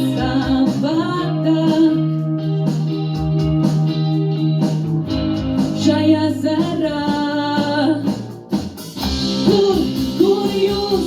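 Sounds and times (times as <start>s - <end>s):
person singing: 0.0s - 3.0s, 5.7s - 8.3s, 9.3s - 11.0s
guitar accompaniment: 0.0s - 11.0s
steady bass line: 0.0s - 11.0s.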